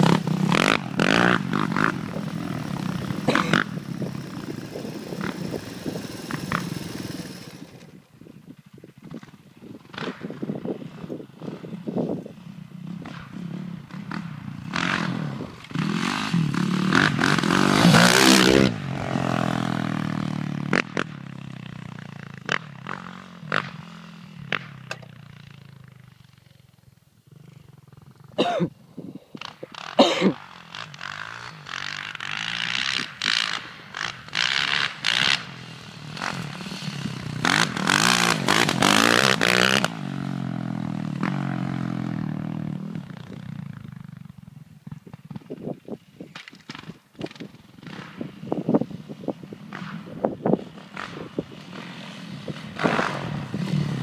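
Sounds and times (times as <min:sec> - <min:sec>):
dirt bike engine revving: 0:00.0 - 0:08.0, 0:12.8 - 0:25.1, 0:29.4 - 0:43.5, 0:49.7 - 0:54.0.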